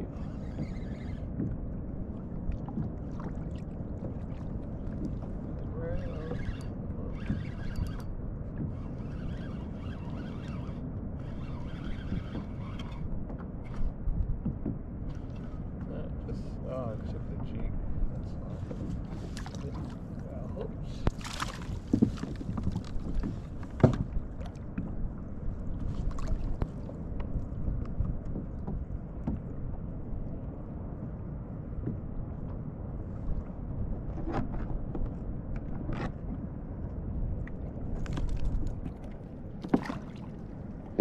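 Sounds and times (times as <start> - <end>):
water lapping against kayak hull: 0.0 - 41.0
wind rumble on microphone: 0.0 - 41.0
gear knocking against kayak: 11.3 - 15.5, 21.1 - 25.0, 38.0 - 40.2.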